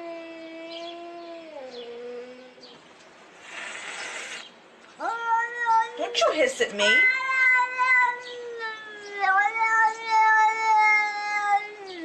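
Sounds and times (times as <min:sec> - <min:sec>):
cat yowling: 0:05.0 - 0:12.0.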